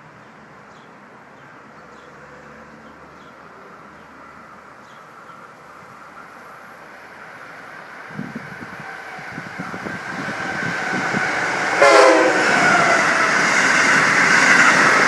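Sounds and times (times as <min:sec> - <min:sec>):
train rushing rumble: 0:03.5 - 0:15.0.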